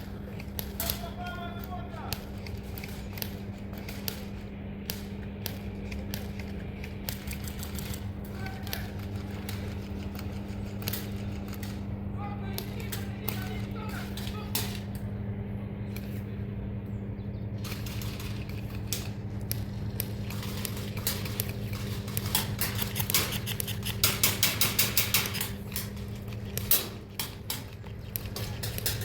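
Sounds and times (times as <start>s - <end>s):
steady low hum: 0.0s - 29.0s
airsoft guns firing: 0.2s - 6.3s.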